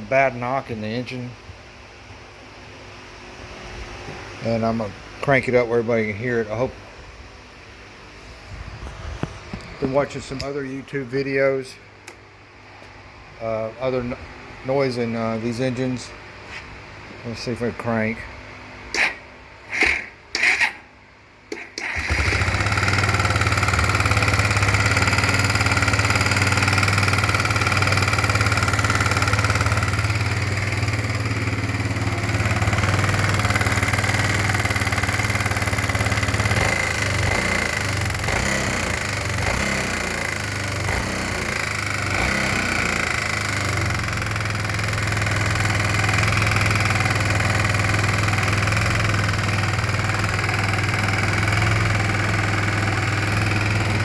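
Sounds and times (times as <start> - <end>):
engine starting and running: 18.9 - 54.0
engine knock: 21.8 - 54.0.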